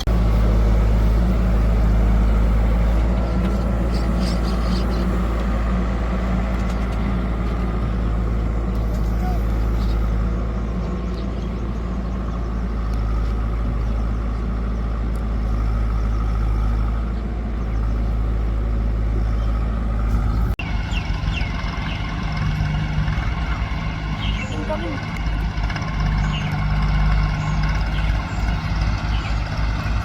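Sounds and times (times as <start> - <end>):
diesel engine with quick throb: 0.0 - 30.0
heavy diesel engine running: 0.0 - 30.0.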